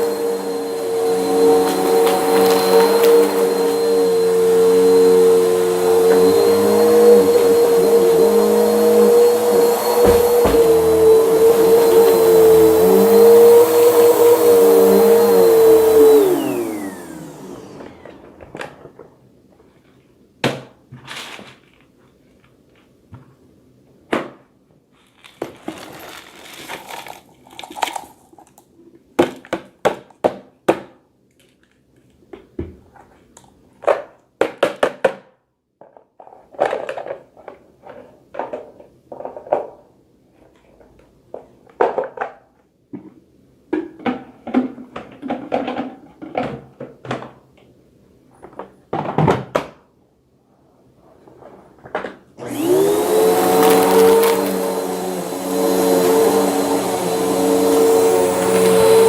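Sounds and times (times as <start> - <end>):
vacuum cleaner running: 0.0 - 19.0, 52.4 - 59.0
vacuum cleaner winding down: 0.0 - 19.0, 52.4 - 59.0.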